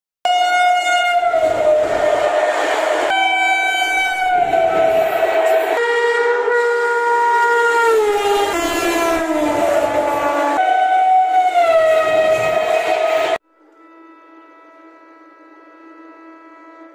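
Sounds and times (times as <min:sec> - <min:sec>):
locomotive horn blaring: 0:00.3 - 0:16.9
train rumbling and clattering: 0:00.8 - 0:06.5, 0:11.6 - 0:13.4.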